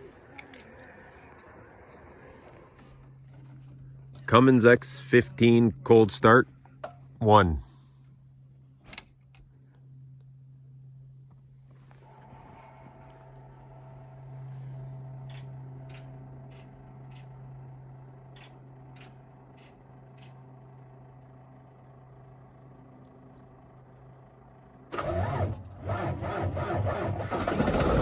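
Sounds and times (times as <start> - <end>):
steady low hum: 0.0 - 25.9
diesel truck engine cranking and running: 12.0 - 28.0.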